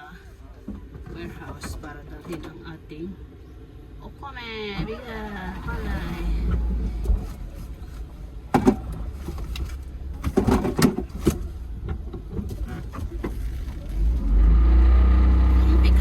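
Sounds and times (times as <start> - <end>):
vehicle engine running: 4.3 - 16.0
knocks and clunks: 4.8 - 14.2.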